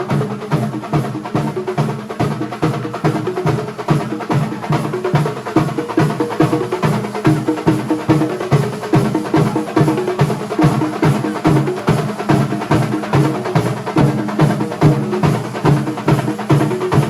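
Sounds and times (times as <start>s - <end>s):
drum ensemble playing fast beat: 0.0s - 17.0s.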